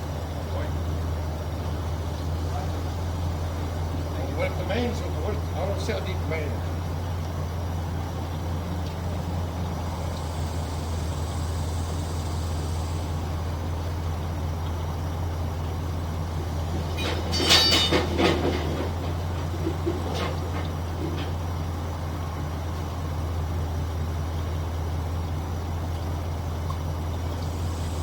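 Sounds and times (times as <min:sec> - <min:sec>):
low engine hum: 0:00.0 - 0:28.0
clattering metallic knocks: 0:16.6 - 0:21.8.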